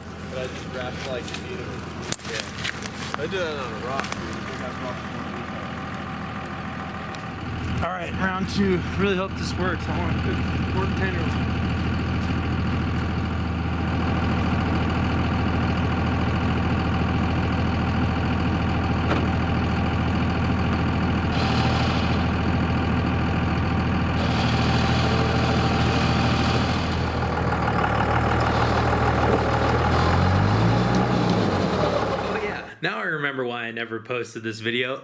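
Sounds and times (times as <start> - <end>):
pickup engine idling: 0.0 - 32.8
hissing: 20.9 - 32.7.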